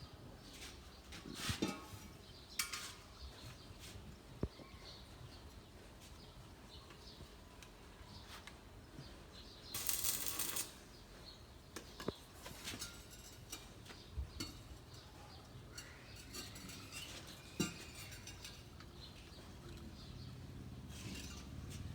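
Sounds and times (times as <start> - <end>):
steel pieces clinking: 9.7 - 10.8, 15.7 - 18.9.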